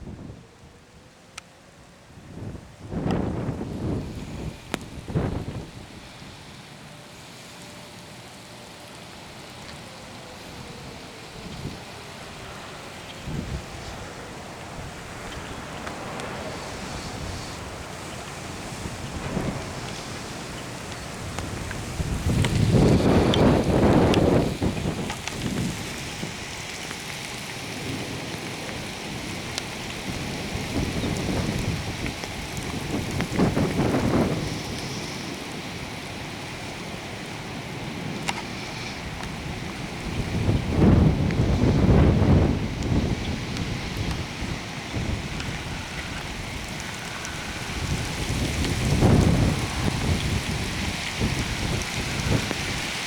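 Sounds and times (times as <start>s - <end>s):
rain: 0.0s - 53.0s
wind: 0.0s - 53.0s
low thunder rumble: 10.3s - 26.6s, 36.9s - 52.8s.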